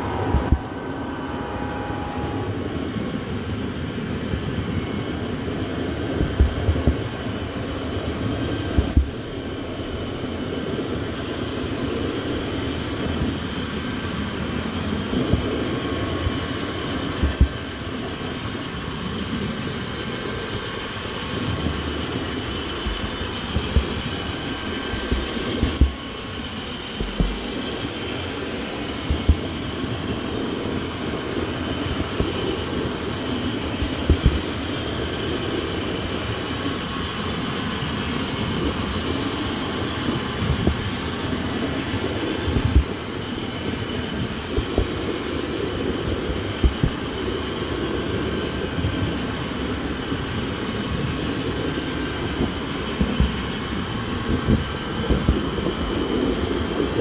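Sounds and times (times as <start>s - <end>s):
faint high tone: 0.0s - 5.0s
train rumbling: 0.0s - 49.3s.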